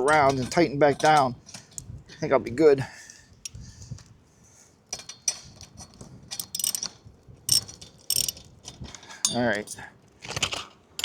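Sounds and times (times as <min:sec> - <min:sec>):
socket ratchet clicking: 0:06.3 - 0:06.9, 0:07.5 - 0:08.4.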